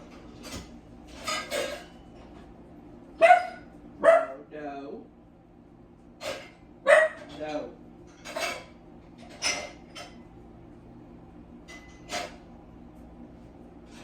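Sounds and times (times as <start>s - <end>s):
dog barking: 3.2s - 4.5s, 6.8s - 7.3s.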